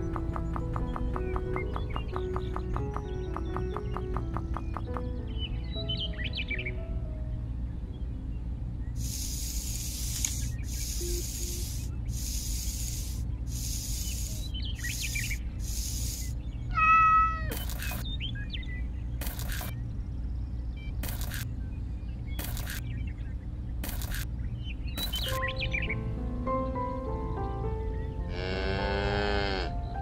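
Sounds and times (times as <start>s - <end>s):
low steady hum: 0.0s - 30.0s
short hiss bursts: 9.0s - 16.4s
cat meowing: 16.7s - 17.5s.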